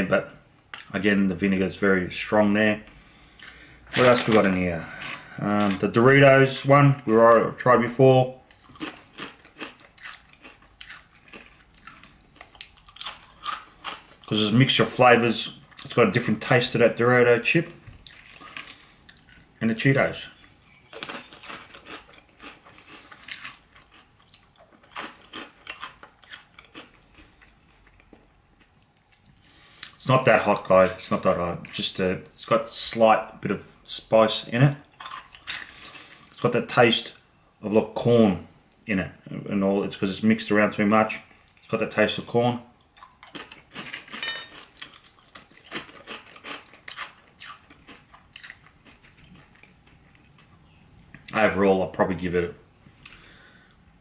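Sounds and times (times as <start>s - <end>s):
crunchy snack chewing: 8.6s - 14.3s, 20.9s - 28.1s, 43.0s - 50.5s.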